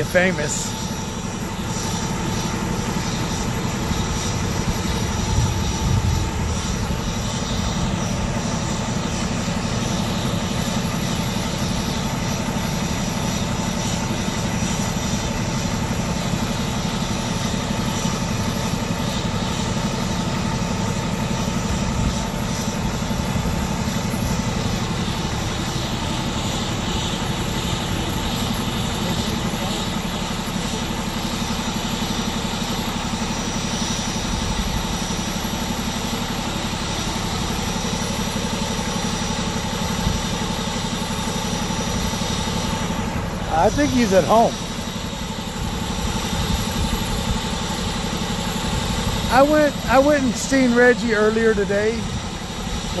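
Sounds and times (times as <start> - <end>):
vehicle engine drone: 0.0 - 53.0.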